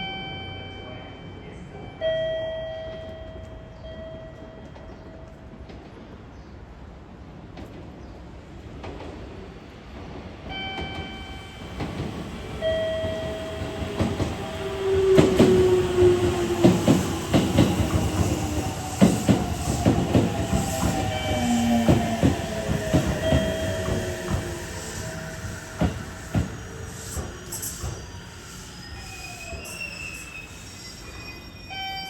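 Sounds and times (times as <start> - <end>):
train wheels clacking on rail joints: 13.0 - 28.1.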